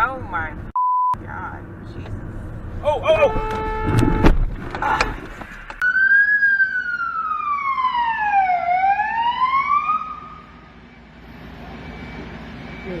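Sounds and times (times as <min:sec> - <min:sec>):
emergency vehicle siren wailing: 0:05.8 - 0:13.0.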